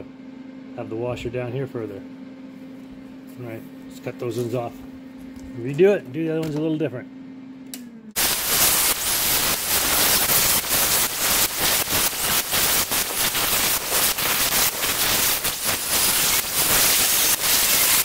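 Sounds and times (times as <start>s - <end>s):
welder arc sizzling: 8.2s - 18.0s.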